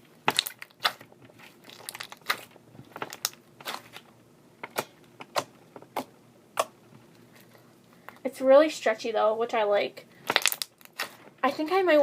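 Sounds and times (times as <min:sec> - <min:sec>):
slime squeezed crackling and popping: 0:00.2 - 0:06.8, 0:10.2 - 0:11.2.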